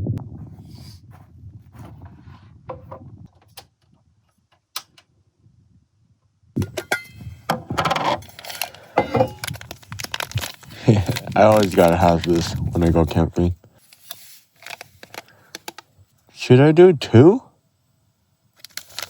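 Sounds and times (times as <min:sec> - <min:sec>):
camp gear clinking and rattling: 0:06.6 - 0:15.8.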